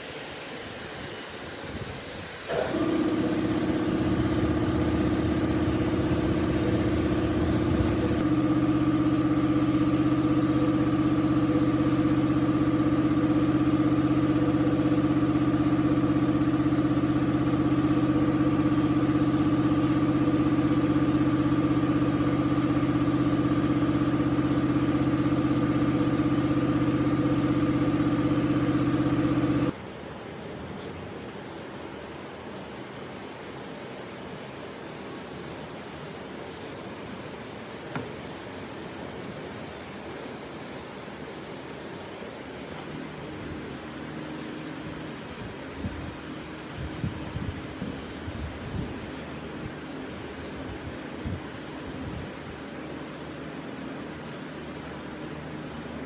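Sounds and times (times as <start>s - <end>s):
power tool motor whining: 2.5s - 29.7s.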